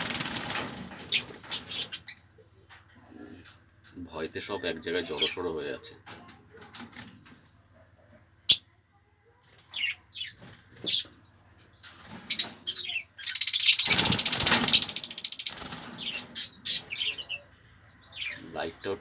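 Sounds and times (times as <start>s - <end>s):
wings flapping: 0.0s - 2.1s, 13.3s - 17.0s
lovebirds chirping: 0.0s - 19.0s.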